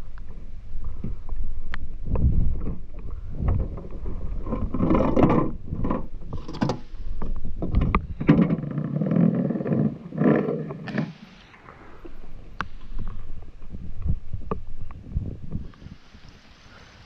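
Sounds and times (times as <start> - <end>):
gear bumping hull: 0.0 - 11.2.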